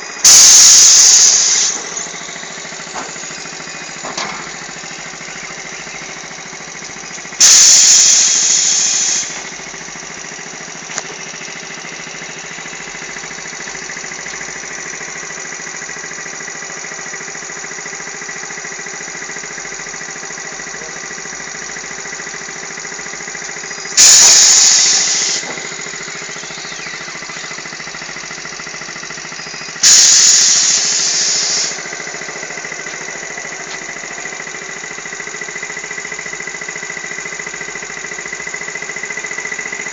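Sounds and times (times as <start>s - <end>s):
motorcycle engine running: 0.0s - 39.9s
sudden loud burst of noise: 0.2s - 4.8s, 7.4s - 9.8s, 24.0s - 28.4s, 29.1s - 35.4s.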